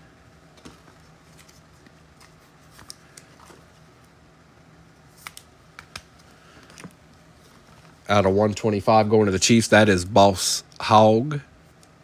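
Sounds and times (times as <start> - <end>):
low electrical hum: 0.0 - 12.0
cards clicking and rustling: 0.5 - 3.8, 5.1 - 7.0.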